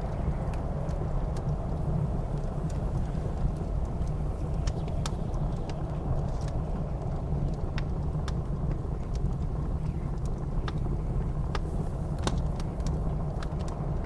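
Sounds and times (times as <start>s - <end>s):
blizzard wind roaring: 0.0s - 14.0s
wood fire crackling and popping: 0.0s - 14.0s.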